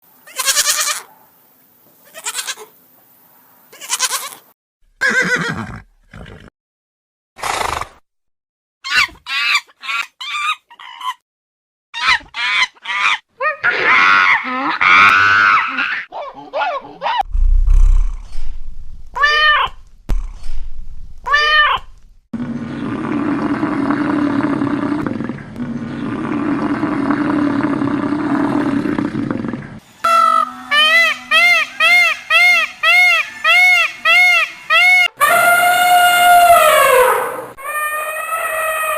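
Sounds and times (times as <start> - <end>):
low rumble: 17.2 - 22.3
cat meowing: 21.3 - 21.9
farm animal calls with wavering pitch: 30.0 - 38.9
lower animal call: 30.0 - 38.9.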